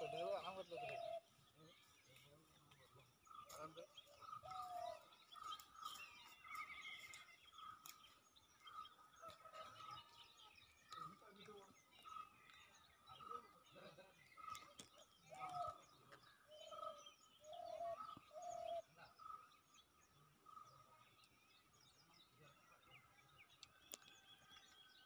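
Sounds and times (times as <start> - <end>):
dove cooing: 0.0 - 1.3, 4.4 - 5.0, 16.5 - 18.9
faint high bird chirps: 0.0 - 25.0.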